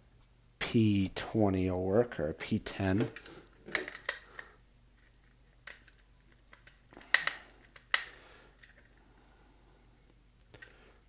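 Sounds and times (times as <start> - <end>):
screwdriver bits clicking and clinking: 3.0 - 8.9.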